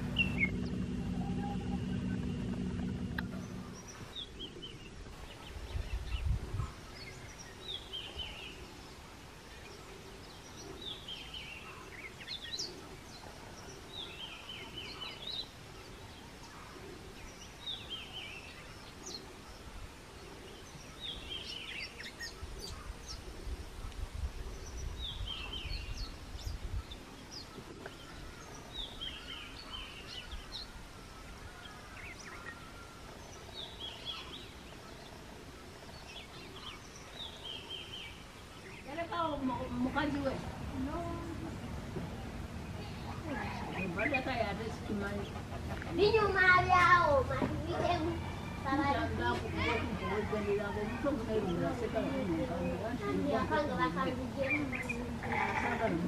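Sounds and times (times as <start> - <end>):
low background rumble: 0.0 - 7.2.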